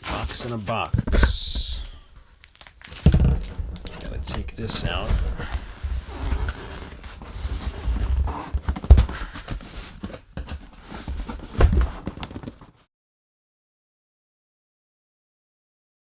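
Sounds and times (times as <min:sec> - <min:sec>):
cardboard rustling and scraping: 0:00.0 - 0:12.8
cardboard box thumps: 0:02.9 - 0:12.6.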